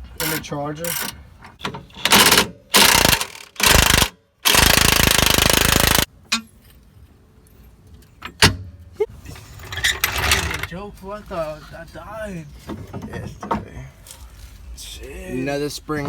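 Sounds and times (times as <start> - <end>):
impact wrench hammering: 2.1 - 6.1.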